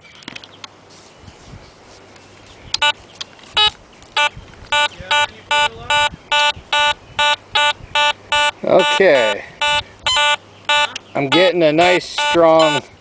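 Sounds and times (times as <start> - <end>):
metal detector beeps: 3.6 - 12.9.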